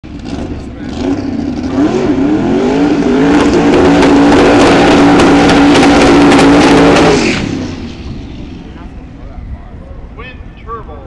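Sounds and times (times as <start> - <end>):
engine revving high with crackles: 0.0 - 8.9.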